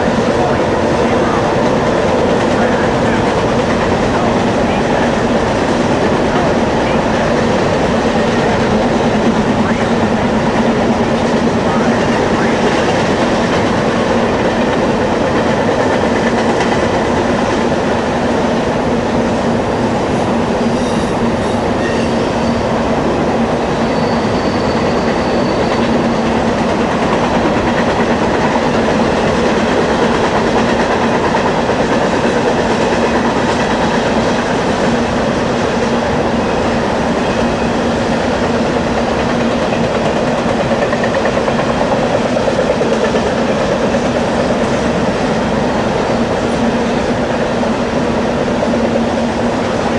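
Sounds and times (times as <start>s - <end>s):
train rolling past: 0.0s - 49.9s
faint high wheel squeal: 20.7s - 22.7s, 23.8s - 26.2s.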